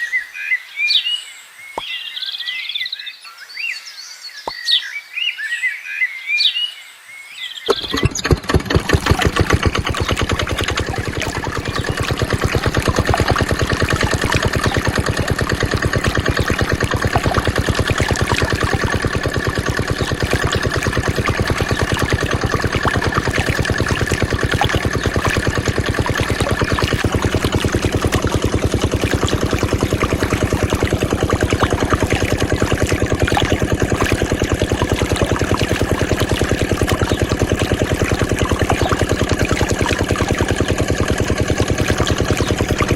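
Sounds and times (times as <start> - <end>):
small water pump engine running: 7.7 - 42.9.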